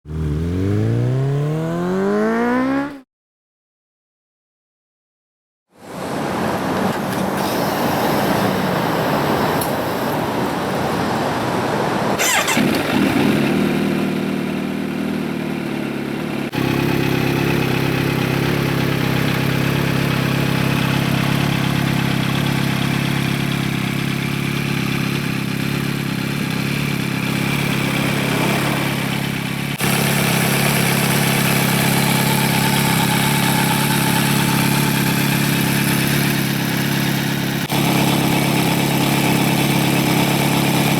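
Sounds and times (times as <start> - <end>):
motorcycle engine starting and idling: 0.1 - 3.0, 12.2 - 40.9.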